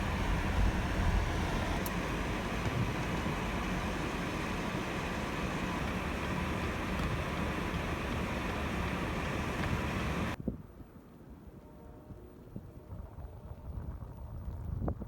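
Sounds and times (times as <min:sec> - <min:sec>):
rushing traffic: 0:00.0 - 0:10.4.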